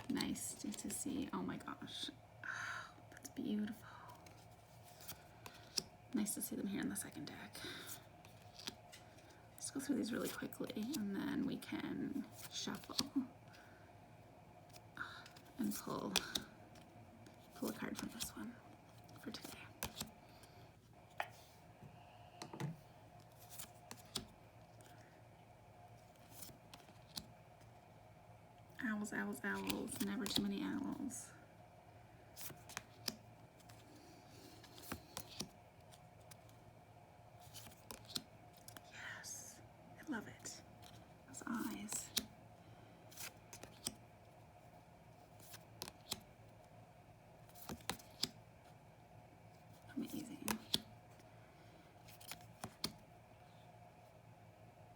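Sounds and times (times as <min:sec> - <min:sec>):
cards being flipped: 0:08.3 - 0:09.3, 0:16.0 - 0:18.3, 0:19.3 - 0:20.1, 0:22.5 - 0:25.0, 0:29.6 - 0:30.4, 0:32.4 - 0:33.8, 0:34.6 - 0:36.5, 0:37.4 - 0:38.8, 0:41.6 - 0:42.3, 0:43.1 - 0:44.0, 0:45.4 - 0:46.2, 0:47.5 - 0:48.4, 0:50.1 - 0:50.9, 0:52.1 - 0:53.0
cards clicking and tapping: 0:50.4 - 0:50.8.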